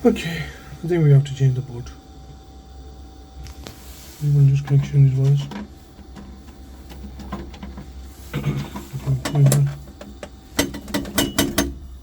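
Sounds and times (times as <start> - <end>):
steady low hum: 0.0 - 12.0
hands clicking wiring connections: 8.8 - 11.8.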